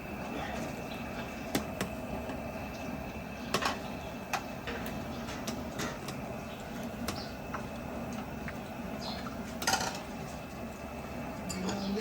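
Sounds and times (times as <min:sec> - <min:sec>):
background hum: 0:00.0 - 0:12.0
serving utensils clinking: 0:11.4 - 0:11.9.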